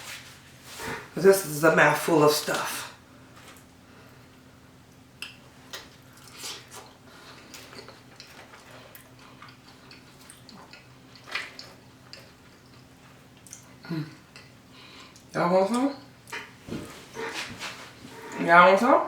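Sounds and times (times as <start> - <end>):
faint steady hum: 0.0 - 19.0
wet chewing and lip smacks: 5.2 - 15.3, 16.2 - 17.4.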